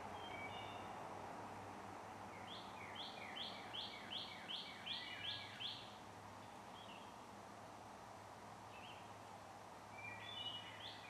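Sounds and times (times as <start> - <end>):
songbird singing repeated notes: 0.0 - 1.1, 2.0 - 7.2, 8.7 - 9.2, 9.9 - 11.0
faint outdoor hiss: 0.0 - 11.0.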